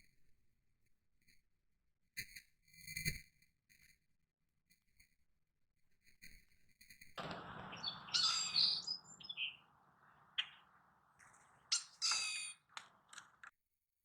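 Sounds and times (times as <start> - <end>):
sharp clicks: 7.2 - 13.5
wild birds chirping: 7.2 - 13.5.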